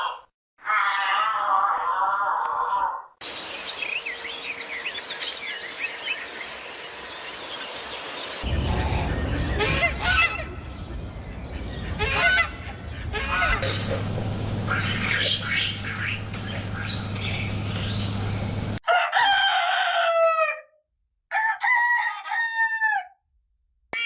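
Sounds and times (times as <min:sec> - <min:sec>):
small birds chirping: 0:03.2 - 0:09.6, 0:13.6 - 0:18.8
farm fowl honking: 0:11.8 - 0:18.8
low rumble: 0:13.6 - 0:18.8
steady hiss: 0:13.6 - 0:18.8.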